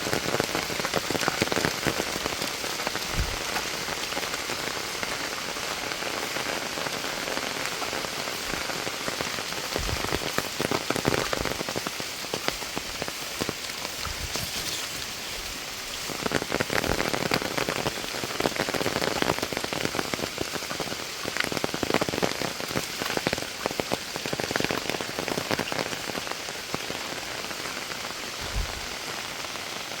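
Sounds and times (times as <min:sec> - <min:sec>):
heavy rain falling: 0:00.0 - 0:30.0
low thuds: 0:03.1 - 0:03.6, 0:28.4 - 0:28.9.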